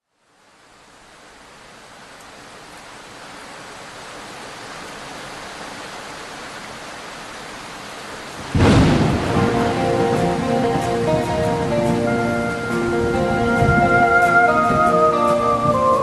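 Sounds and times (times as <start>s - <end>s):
steady rain: 0.0s - 16.0s
loud thunder clap: 8.4s - 12.0s.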